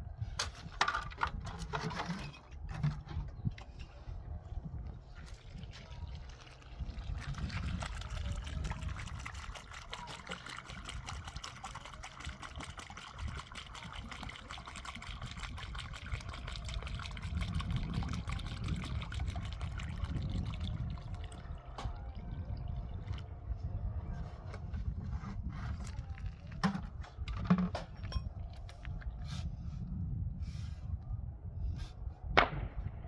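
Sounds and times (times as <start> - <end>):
water running and splashing: 5.3 - 23.3.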